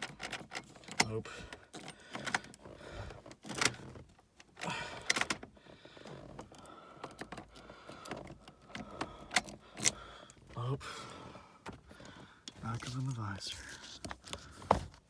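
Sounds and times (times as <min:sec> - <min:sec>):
ignition key clicks: 0:00.0 - 0:02.6, 0:06.4 - 0:10.1.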